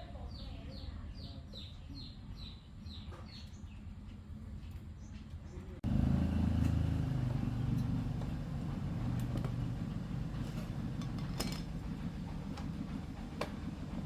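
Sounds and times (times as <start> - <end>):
small engine droning: 5.8 - 14.0.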